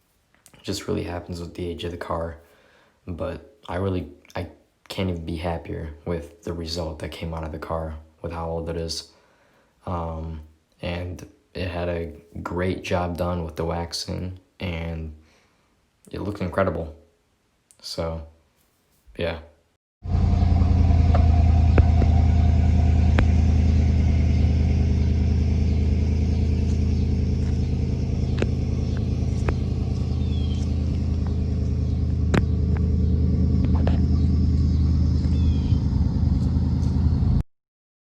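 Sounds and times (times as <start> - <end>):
car engine idling: 20.0 - 37.4.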